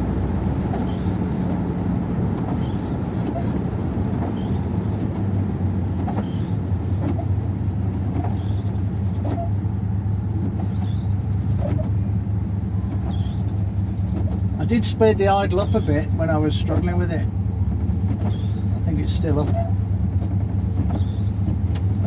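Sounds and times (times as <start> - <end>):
car engine drone from inside: 0.0 - 22.0.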